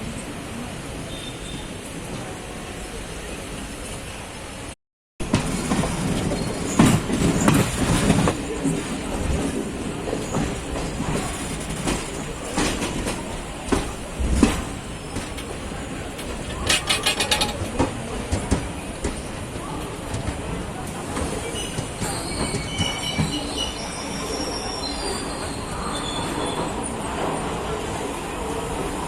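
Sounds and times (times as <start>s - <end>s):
train running rumble: 5.2s - 24.0s
wheels knocking over rail joints: 5.3s - 19.2s.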